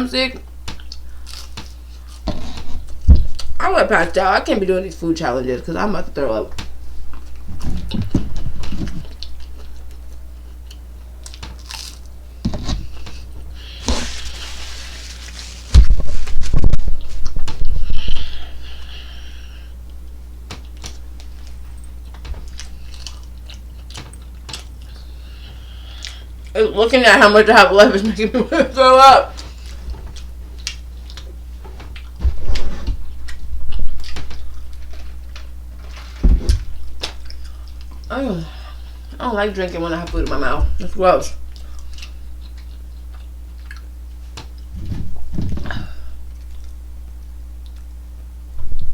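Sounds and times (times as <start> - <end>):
low steady hum: 0.0 - 48.9
chewing and mouth noises: 41.5 - 44.7.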